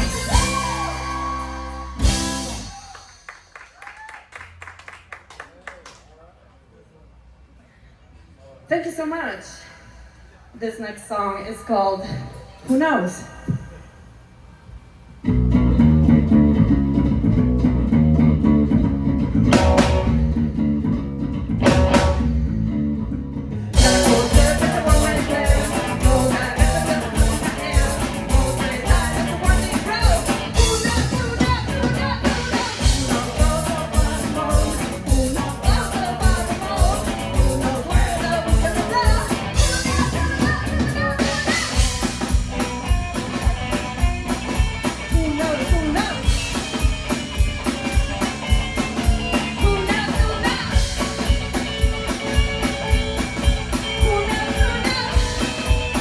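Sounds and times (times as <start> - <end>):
guitar and bass: 0.0 - 3.4, 15.2 - 56.0
drum kit steady beat: 0.0 - 3.7, 17.9 - 20.5, 21.6 - 22.5, 23.8 - 56.0
live rock band playing: 0.0 - 3.7, 15.3 - 56.0.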